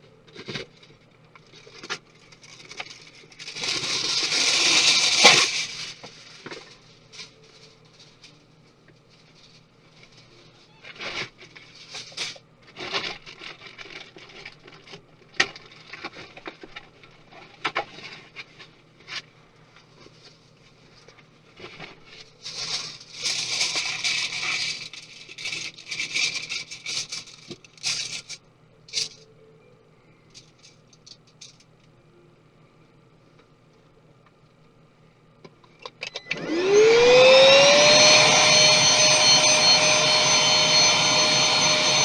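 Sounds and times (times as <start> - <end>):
scraping and rustling: 0.4 - 28.4.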